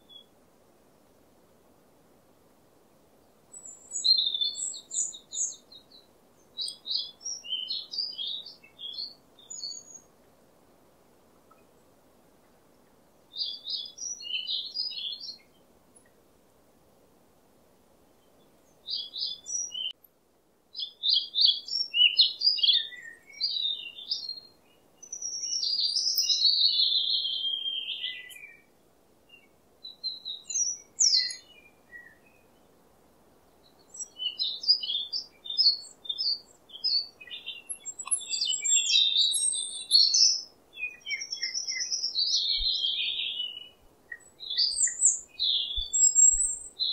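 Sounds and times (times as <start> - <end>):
birds chirping and warbling: 3.5 - 10.1, 13.4 - 15.6, 18.6 - 20.0, 20.8 - 28.7, 29.4 - 32.8, 33.5 - 46.9.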